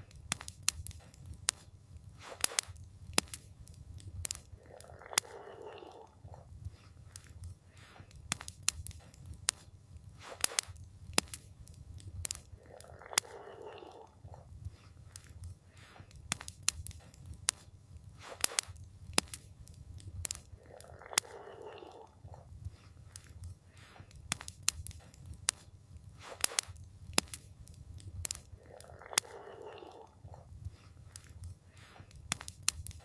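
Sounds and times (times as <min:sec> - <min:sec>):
campfire crackling and popping: 0:00.0 - 0:33.0
soft hushing sound: 0:00.0 - 0:33.0.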